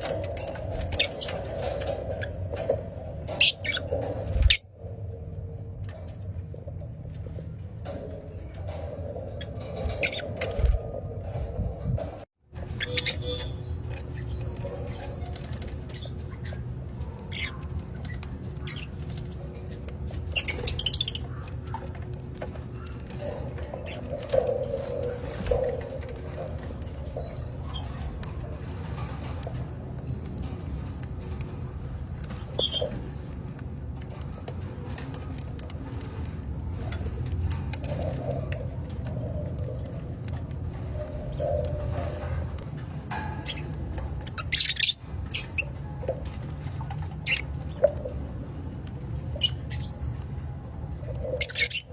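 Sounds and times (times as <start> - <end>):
bird chirping and squeaking: 0.0 - 2.7, 3.3 - 4.8, 8.3 - 10.9, 12.5 - 33.3, 39.9 - 48.2, 49.1 - 50.3, 51.0 - 51.9.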